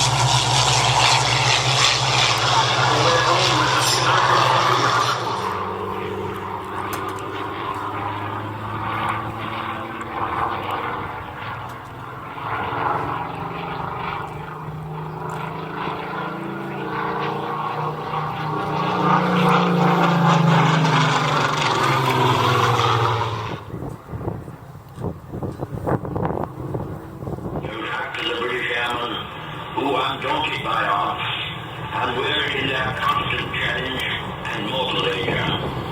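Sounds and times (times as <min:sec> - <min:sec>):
propeller aircraft engines droning: 0:00.0 - 0:35.9.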